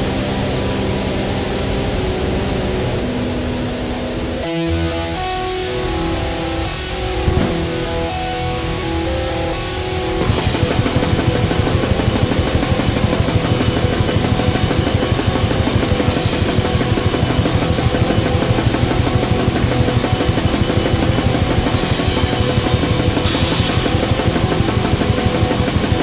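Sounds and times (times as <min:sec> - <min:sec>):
distorted guitar: 0:00.0 - 0:26.0
fast dense drumming: 0:10.2 - 0:26.0.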